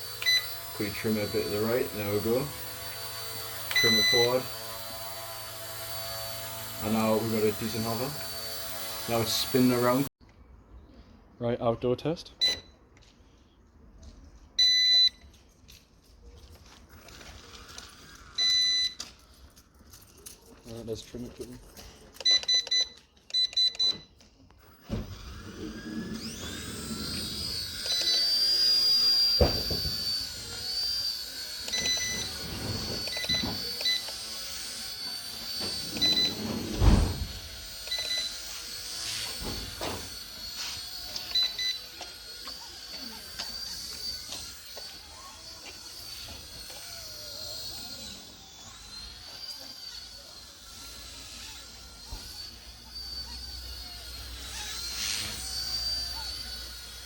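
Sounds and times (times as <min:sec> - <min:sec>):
rc helicopter motor whining: 0:00.0 - 0:10.1, 0:16.6 - 0:57.0
short electronic beeps: 0:12.4 - 0:12.8.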